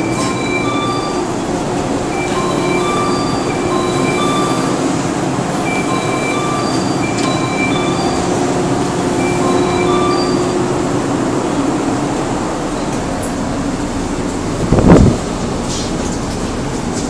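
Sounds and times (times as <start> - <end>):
train equipment hum and hiss: 0.0 - 17.0
short high tones: 9.2 - 10.7.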